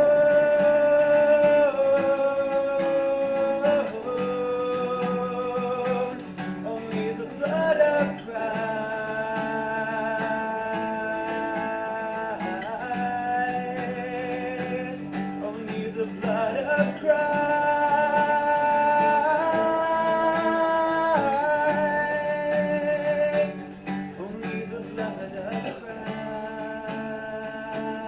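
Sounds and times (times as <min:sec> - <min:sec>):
person singing: 0:00.0 - 0:28.0
strummed acoustic guitar: 0:00.0 - 0:28.0.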